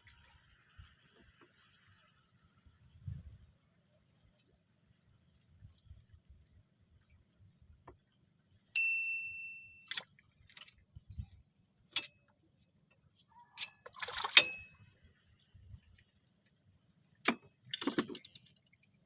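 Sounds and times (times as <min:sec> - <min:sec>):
small metal object ringing ding: 0:08.8 - 0:09.9
metallic clicks and clinks: 0:17.6 - 0:18.8.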